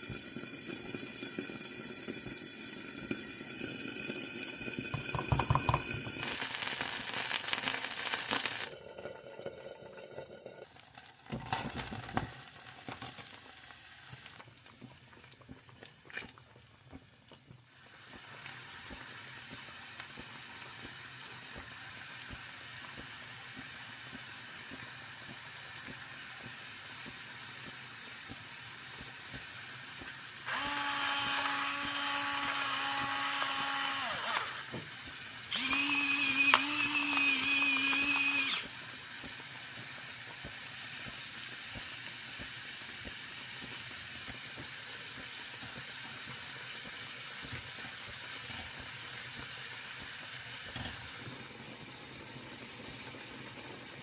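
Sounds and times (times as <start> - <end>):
running water: 0.0 - 7.2
food sizzling in a pan: 0.0 - 16.6, 17.6 - 54.0
kitchen appliance motor whirring: 30.5 - 39.3.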